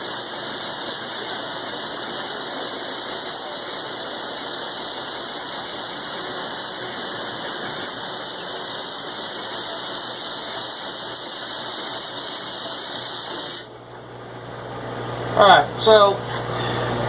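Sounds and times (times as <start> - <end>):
machine hum: 0.0 - 17.0
milling cutter screeching in steel: 0.1 - 13.7.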